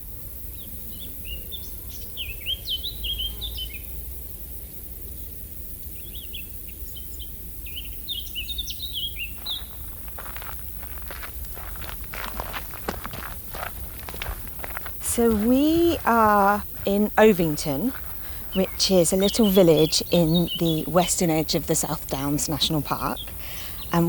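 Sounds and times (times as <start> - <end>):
songbird chirping: 7.0 - 24.0
footsteps: 9.4 - 24.0
low outdoor rumble: 9.6 - 24.0.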